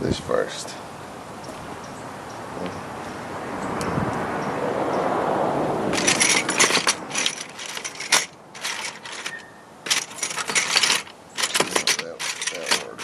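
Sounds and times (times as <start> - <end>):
metal chain rattling: 5.9 - 13.0.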